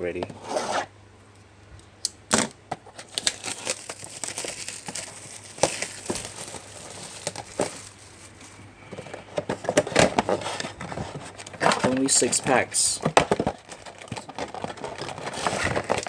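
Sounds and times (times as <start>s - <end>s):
packaging crinkling and tearing: 2.4s - 8.7s, 13.3s - 16.0s.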